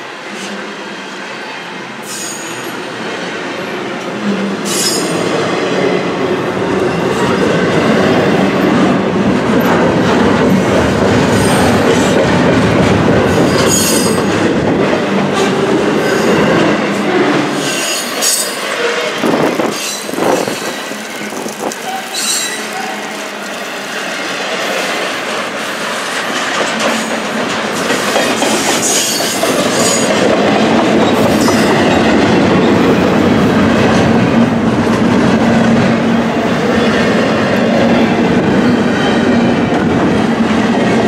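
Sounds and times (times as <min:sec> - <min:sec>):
train wheels rumbling on rails: 0:00.0 - 0:41.0
high-pitched wheel squeals: 0:21.8 - 0:23.0.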